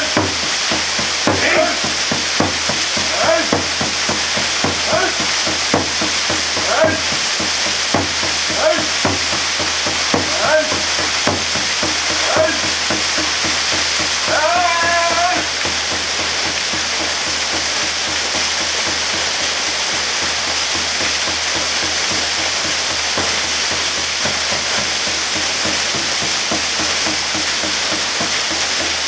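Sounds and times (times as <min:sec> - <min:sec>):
waterfall rushing: 0:00.0 - 0:29.0
person calling short syllables: 0:03.0 - 0:03.8, 0:04.7 - 0:05.4.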